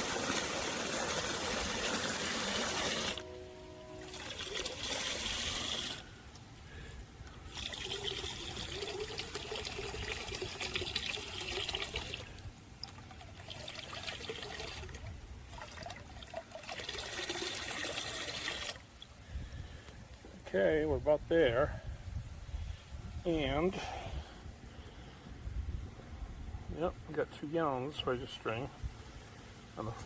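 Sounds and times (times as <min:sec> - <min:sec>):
hose water filling bucket: 0:00.0 - 0:06.1, 0:07.4 - 0:19.2.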